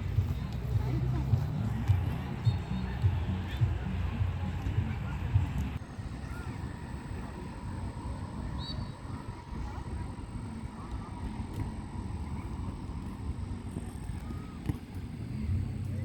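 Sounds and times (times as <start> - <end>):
faint bird chirps: 8.5 - 9.2.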